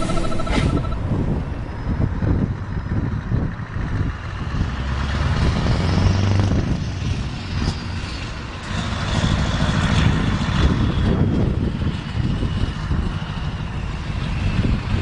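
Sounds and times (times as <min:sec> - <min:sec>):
faint high whine: 0:00.0 - 0:01.2
diesel truck engine running: 0:00.0 - 0:15.0.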